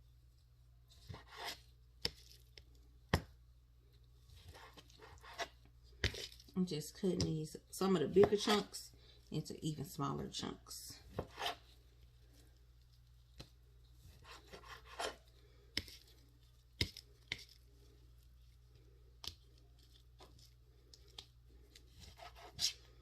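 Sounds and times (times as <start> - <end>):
knife cutting on cutting board: 1.1 - 1.7, 4.5 - 6.2, 11.1 - 11.6, 14.2 - 15.2, 22.0 - 22.8.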